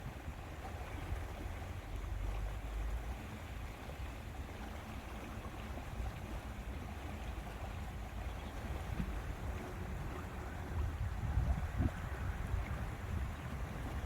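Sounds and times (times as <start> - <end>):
lake water washing: 0.0 - 14.0
wind buffeting microphone: 8.0 - 14.0.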